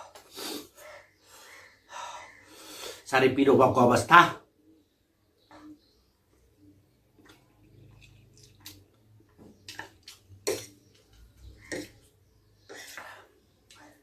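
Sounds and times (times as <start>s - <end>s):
person slurping and chewing noodles: 9.7s - 12.1s.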